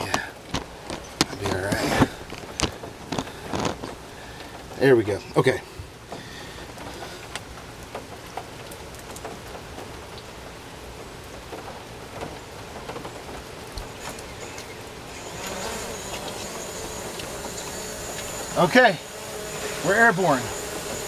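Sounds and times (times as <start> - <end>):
rain pattering: 0.0 - 21.0
drone propellers buzzing: 13.8 - 21.0
steady high whine: 13.8 - 21.0.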